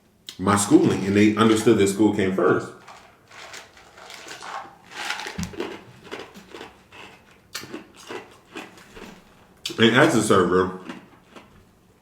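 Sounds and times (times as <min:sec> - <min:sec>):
person chewing food: 0:02.9 - 0:09.8, 0:10.7 - 0:11.8.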